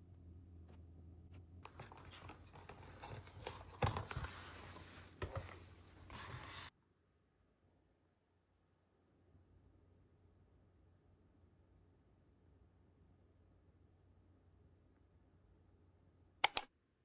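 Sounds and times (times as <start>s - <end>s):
paper scratching and rustling: 1.6s - 6.7s
sharp clicks: 16.4s - 16.7s.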